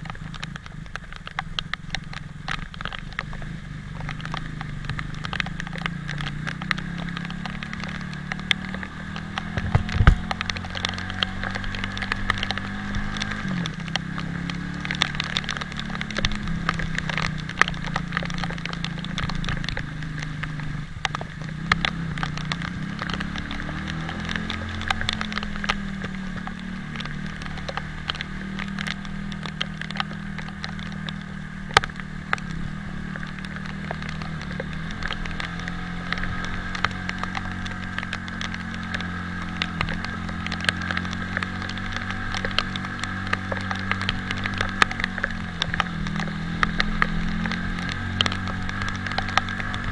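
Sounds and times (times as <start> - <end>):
motorcycle engine running: 0.0 - 49.9
raindrops striking microphone: 0.0 - 49.9.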